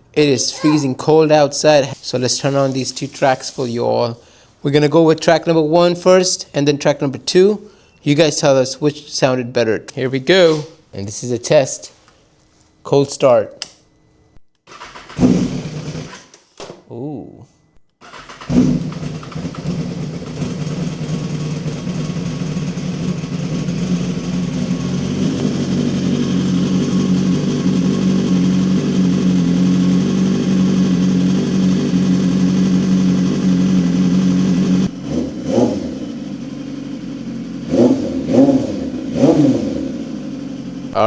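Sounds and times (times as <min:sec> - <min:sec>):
motorcycle throttle blips: 0:18.1 - 0:41.0
motorcycle engine idling: 0:18.2 - 0:41.0.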